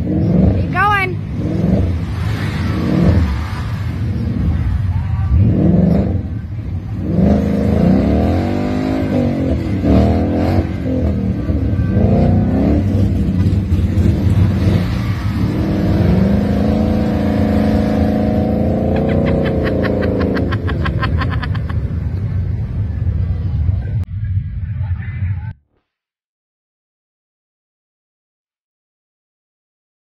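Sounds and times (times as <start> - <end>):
car engines revving hard: 0.0 - 23.0.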